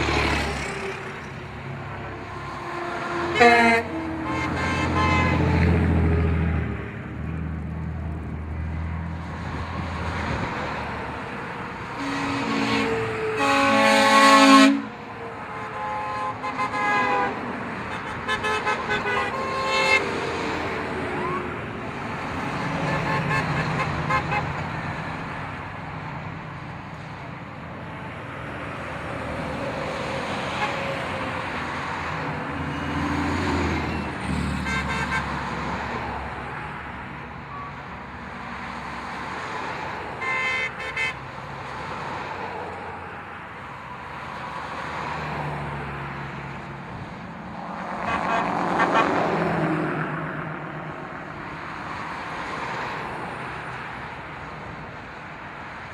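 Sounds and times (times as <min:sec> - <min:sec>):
truck horns honking: 0:00.0 - 0:06.8, 0:11.4 - 0:25.5, 0:29.4 - 0:38.3, 0:40.0 - 0:41.8, 0:47.6 - 0:50.4
tow truck engines rolling past: 0:00.0 - 0:15.8, 0:17.3 - 0:40.2.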